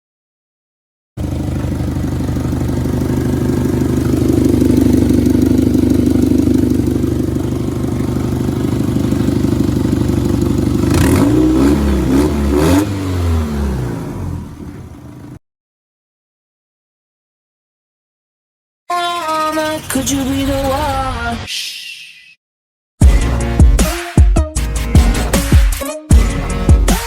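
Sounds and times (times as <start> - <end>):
car engine running and revving: 1.2 - 15.4.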